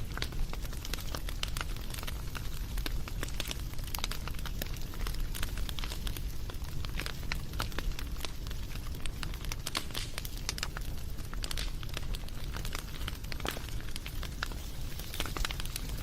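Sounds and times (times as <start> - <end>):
fire snaps and pops: 0.0 - 16.0
low rumble of burning: 0.0 - 16.0.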